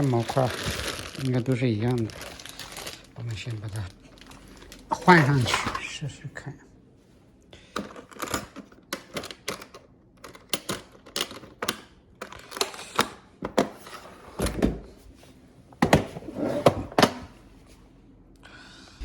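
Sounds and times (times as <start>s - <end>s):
plastic parts clicking and tapping: 7.7s - 13.7s.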